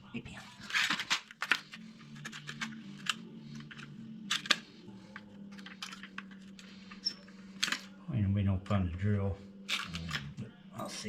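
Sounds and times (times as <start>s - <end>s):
tools and steel parts clicking: 0.7s - 4.6s, 5.5s - 7.9s.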